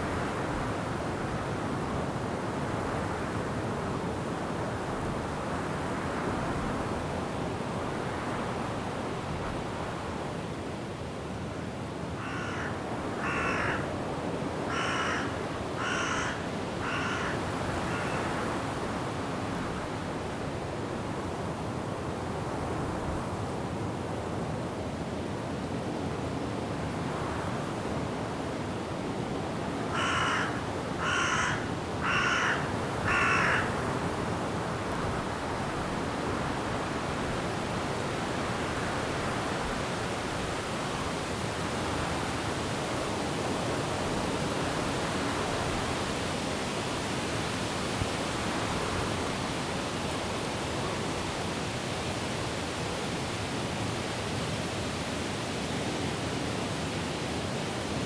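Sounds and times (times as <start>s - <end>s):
wind through forest trees: 0.0s - 58.0s
bird calling: 14.7s - 18.3s, 30.0s - 33.7s.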